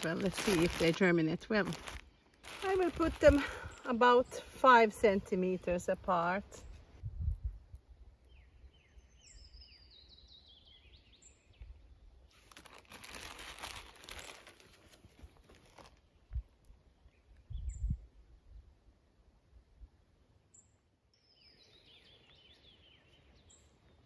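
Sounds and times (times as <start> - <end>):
crinkly rustling: 0.0 - 3.9, 12.3 - 16.2
songbird singing: 0.0 - 7.0, 7.7 - 12.6, 16.0 - 18.4, 20.4 - 24.0.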